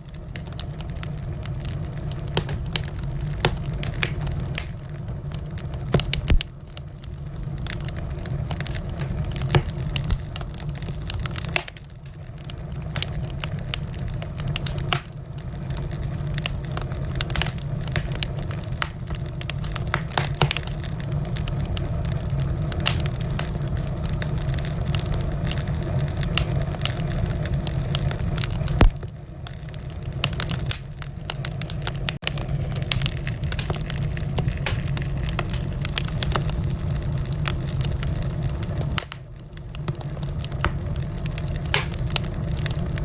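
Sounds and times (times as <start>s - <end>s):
low rumble of flames: 0.0s - 43.0s
wood fire crackling and popping: 0.0s - 43.0s.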